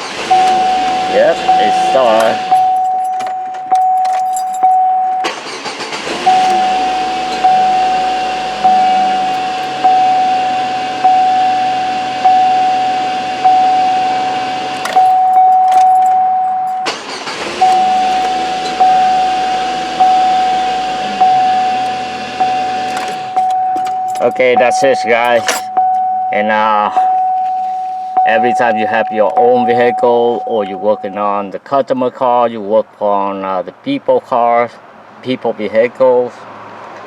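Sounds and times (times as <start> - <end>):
car warning chime dinging: 0.0 - 32.1.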